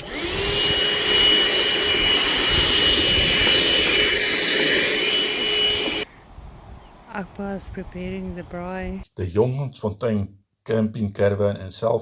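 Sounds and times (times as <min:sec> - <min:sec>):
vacuum cleaner running: 0:00.0 - 0:06.1.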